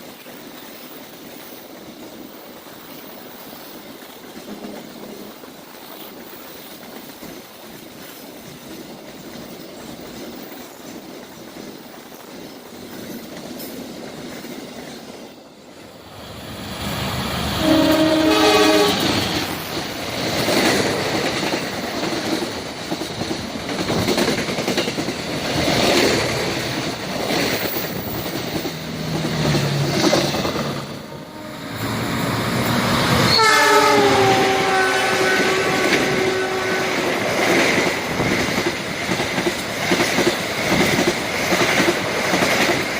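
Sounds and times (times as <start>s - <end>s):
train cars rushing and clattering: 0.0s - 42.9s
train horn: 17.5s - 19.5s, 30.8s - 32.1s, 33.1s - 37.2s.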